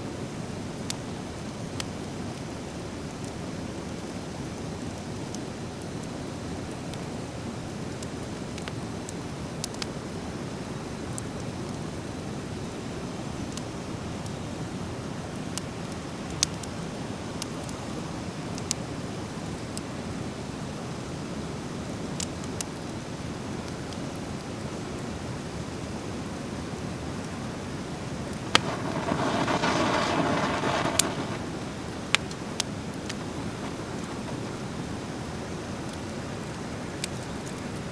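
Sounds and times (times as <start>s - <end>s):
fire crackling and popping: 27.2s - 37.9s
loud fire hiss: 27.6s - 37.6s.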